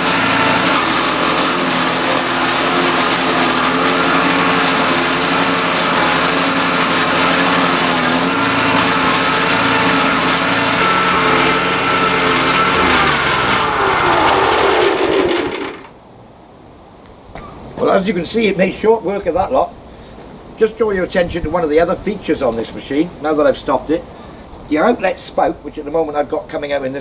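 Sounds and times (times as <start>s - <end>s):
wood chipper engine running: 0.0s - 16.0s.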